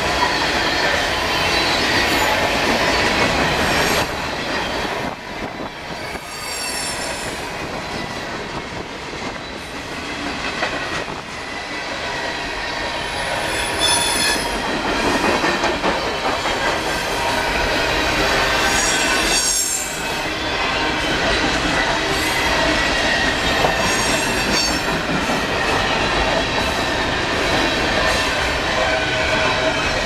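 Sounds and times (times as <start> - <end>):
freight train rumble and clatter: 0.0 - 30.0
high-pitched wheel squeals: 6.0 - 7.4, 13.5 - 14.6.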